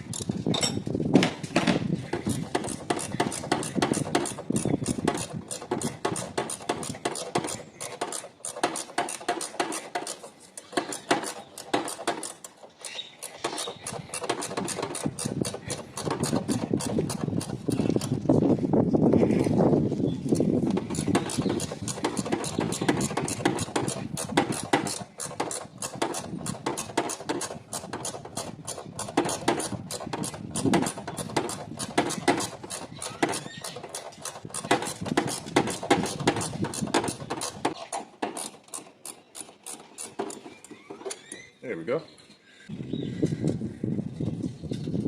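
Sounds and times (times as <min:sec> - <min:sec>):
ratchet wrench clicking: 0:02.2 - 0:18.2, 0:20.8 - 0:37.7.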